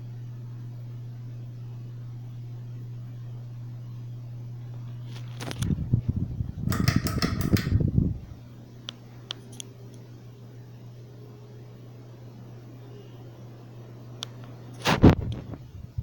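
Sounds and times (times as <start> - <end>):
ceiling fan motor humming: 0.0 - 16.0
loud clattering rattle: 6.7 - 7.8.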